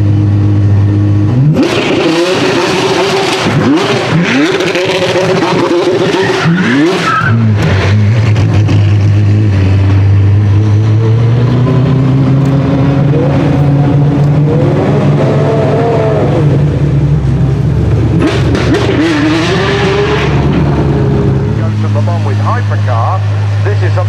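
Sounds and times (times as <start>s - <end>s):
car engine running at low revs: 0.0s - 24.0s.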